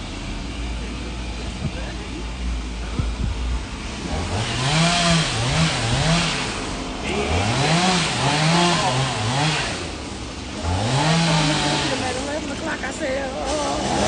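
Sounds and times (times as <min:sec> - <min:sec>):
chainsaw cutting wood: 0:04.0 - 0:12.6.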